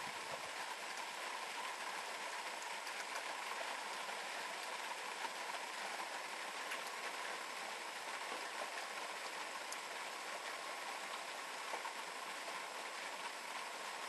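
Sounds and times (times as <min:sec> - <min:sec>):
steady rain hiss: 0:00.0 - 0:14.0
raindrop ticks: 0:02.6 - 0:07.2, 0:09.6 - 0:12.0.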